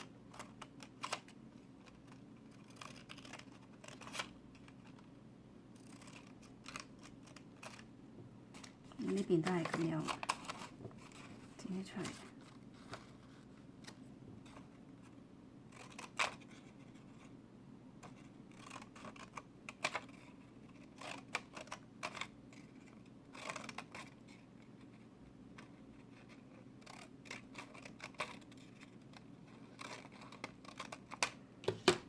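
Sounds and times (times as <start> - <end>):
scissors snipping paper: 0.3 - 5.0, 5.8 - 7.9, 8.6 - 11.3, 15.7 - 16.7, 18.0 - 24.4, 25.5 - 31.4.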